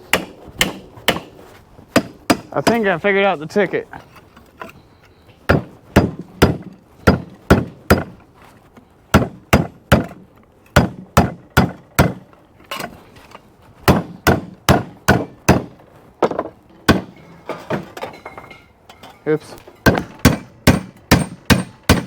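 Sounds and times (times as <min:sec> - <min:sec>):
hammer on sheet steel: 0:19.8 - 0:22.0.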